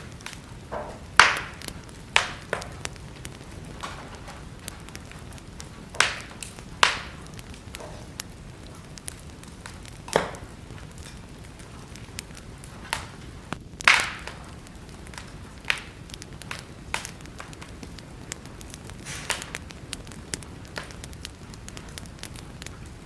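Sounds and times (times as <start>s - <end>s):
fire crackling and popping: 0.0s - 23.0s
wood fire hissing: 0.0s - 23.0s.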